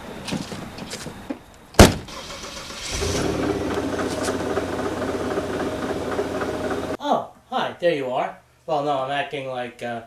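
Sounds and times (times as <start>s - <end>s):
loud thump: 1.8s - 2.1s
car engine starting and running: 2.1s - 7.0s.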